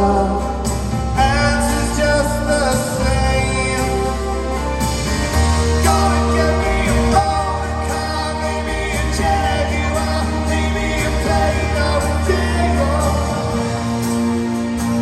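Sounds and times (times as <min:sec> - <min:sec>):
live rock band playing: 0:00.0 - 0:15.0
sustained bass notes: 0:00.0 - 0:15.0.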